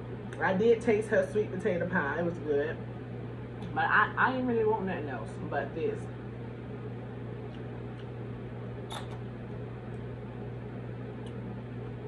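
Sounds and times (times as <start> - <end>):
steady low hum: 0.0 - 12.0
person chewing with wet clicks: 7.4 - 8.2, 8.9 - 9.2.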